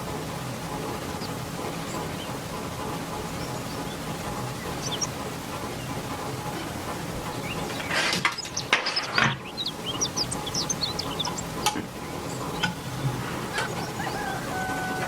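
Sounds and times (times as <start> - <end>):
small birds chirping: 0.0 - 14.9
sharp clicks and knocks: 6.4 - 13.9.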